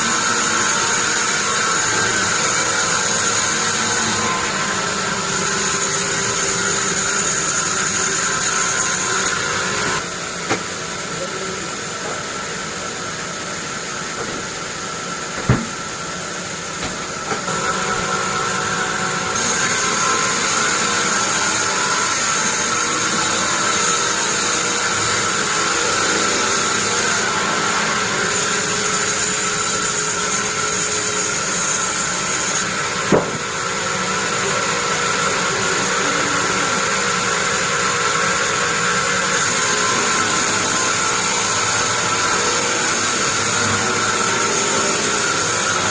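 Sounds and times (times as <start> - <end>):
band saw whining: 0.0 - 45.9
sharp knocks: 15.4 - 15.8, 33.1 - 33.4.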